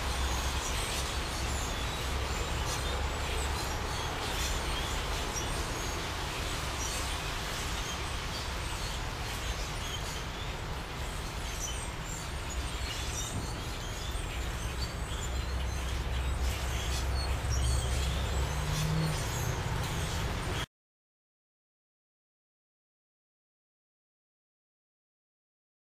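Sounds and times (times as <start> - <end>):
flock of birds chirping: 0.0 - 20.7.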